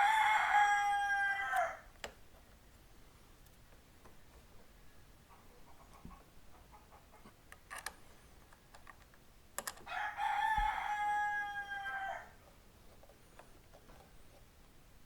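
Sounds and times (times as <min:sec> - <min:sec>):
rooster crowing: 0:00.0 - 0:01.9, 0:09.9 - 0:12.4.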